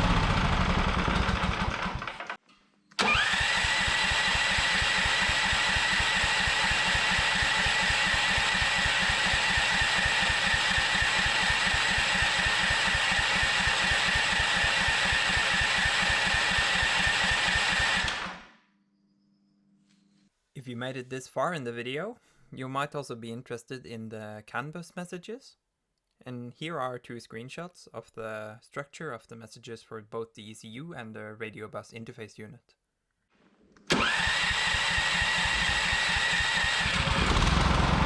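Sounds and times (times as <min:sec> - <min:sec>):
electric starter cranking: 0:00.0 - 0:02.4, 0:03.0 - 0:18.6, 0:33.9 - 0:38.0
small engine dying: 0:00.0 - 0:02.4, 0:03.0 - 0:18.6, 0:33.9 - 0:38.0.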